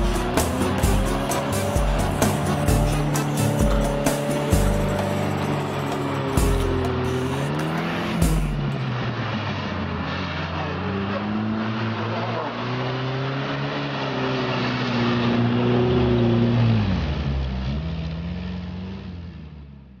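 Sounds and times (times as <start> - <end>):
off-road vehicle engines revving: 0.0 - 19.9.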